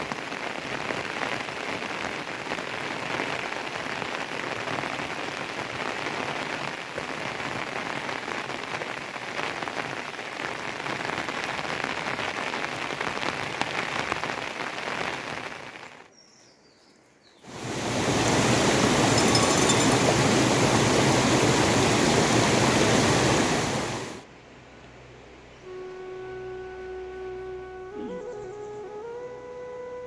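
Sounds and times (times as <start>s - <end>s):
rain falling: 0.0s - 16.1s, 17.5s - 24.3s
steady rushing noise: 17.5s - 24.3s.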